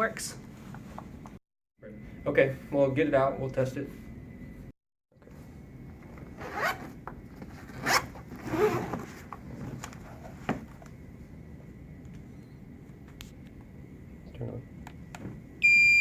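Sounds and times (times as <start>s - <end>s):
zipper being unzipped: 6.4s - 7.0s, 7.6s - 9.1s.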